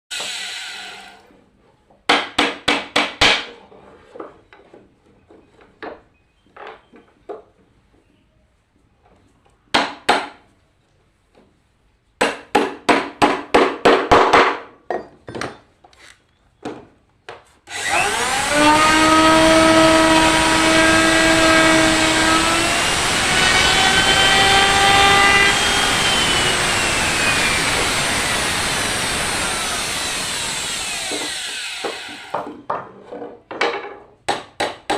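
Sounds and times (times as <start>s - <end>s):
wood moulding machine whining: 0.1s - 1.3s, 17.7s - 32.5s
sharp wooden knocks: 30.6s - 32.9s.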